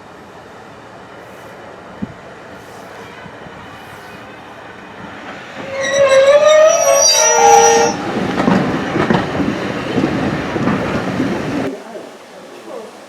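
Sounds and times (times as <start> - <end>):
train rumbling and clattering by: 0.1 - 11.8
train horn: 5.6 - 8.4.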